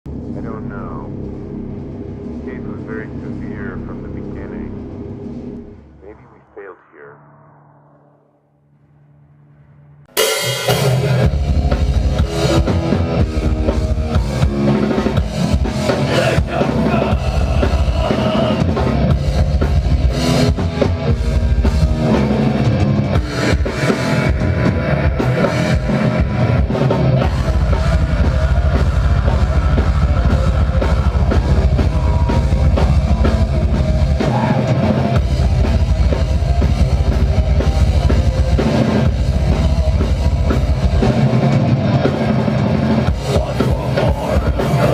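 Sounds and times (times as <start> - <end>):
metal band playing live: 10.1 - 44.9
fast bass drum pounding: 10.6 - 44.9.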